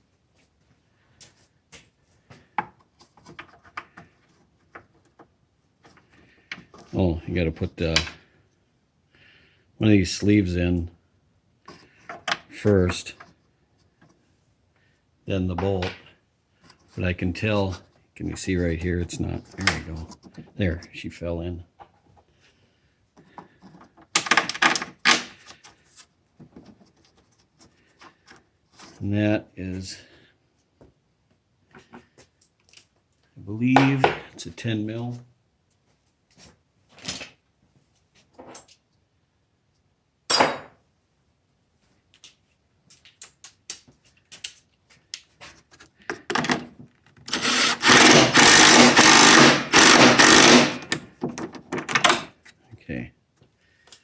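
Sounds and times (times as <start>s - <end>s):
handheld power tool running: 47.3s - 51.0s.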